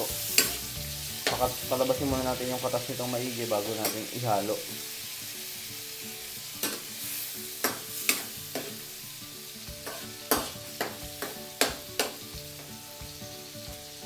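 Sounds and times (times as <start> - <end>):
metal spoon scraping a pan: 0.0 - 1.4, 6.5 - 8.9, 9.8 - 12.2
oil sizzling in a wok: 0.0 - 14.0.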